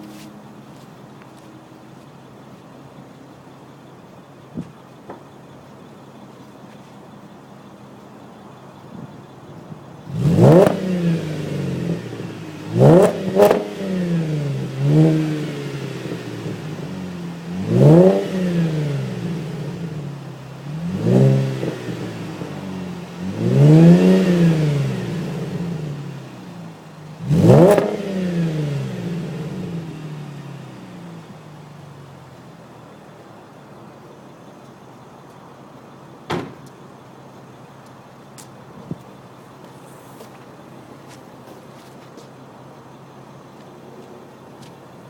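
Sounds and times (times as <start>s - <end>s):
car engine revving: 10.0s - 33.6s.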